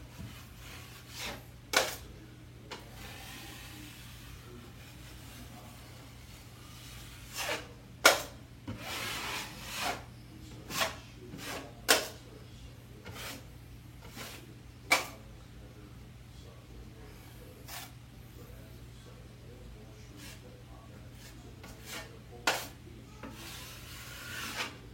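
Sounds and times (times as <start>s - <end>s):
drywall knife scraping compound: 0.1s - 12.2s, 13.0s - 15.2s, 17.6s - 18.0s, 20.1s - 20.4s, 21.1s - 24.9s.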